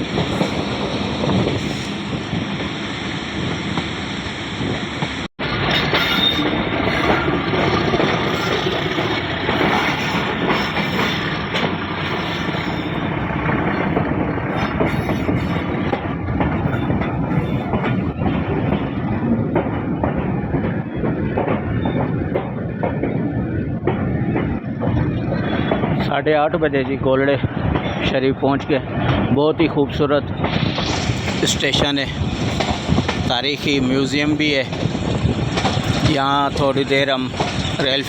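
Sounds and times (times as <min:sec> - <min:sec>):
train rumbling on rails: 0:00.0 - 0:38.0
wheels clicking over rail joints: 0:05.6 - 0:26.1, 0:30.3 - 0:38.0.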